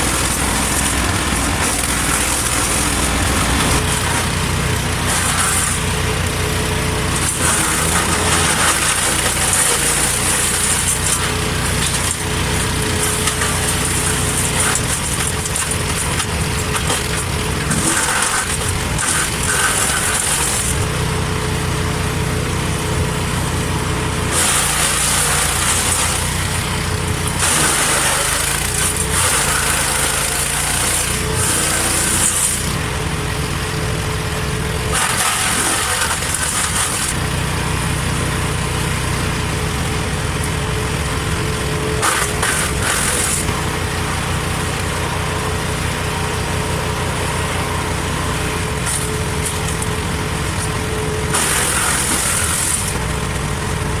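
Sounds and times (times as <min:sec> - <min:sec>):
branches being chipped: 0:00.0 - 0:05.9, 0:07.1 - 0:20.9, 0:24.3 - 0:32.8, 0:34.9 - 0:37.2, 0:42.0 - 0:43.6, 0:50.6 - 0:53.0
wood chipper engine running: 0:00.0 - 0:54.0.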